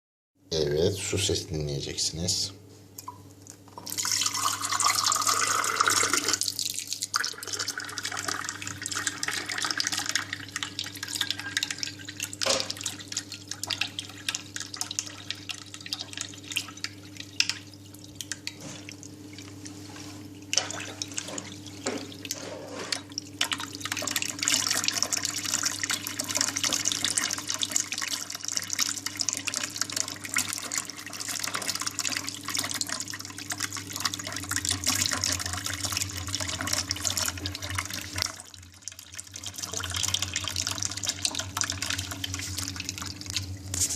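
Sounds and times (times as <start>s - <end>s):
tap water splashing into sink: 3.0s - 19.5s, 20.5s - 22.4s, 23.4s - 38.4s.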